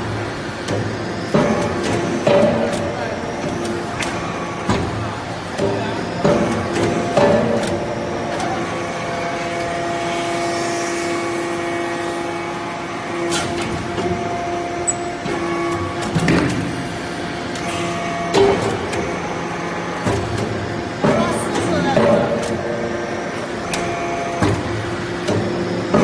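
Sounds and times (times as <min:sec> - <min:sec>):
sharp knocks and clanks: 0:00.7 - 0:05.0, 0:05.6 - 0:08.6.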